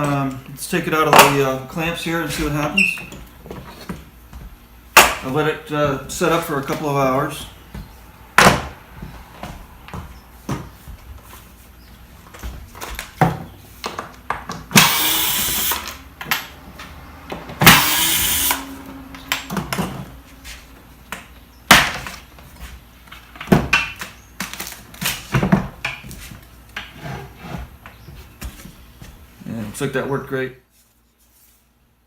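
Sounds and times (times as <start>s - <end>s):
power tool bursts: 14.7s - 16.0s, 17.6s - 18.8s.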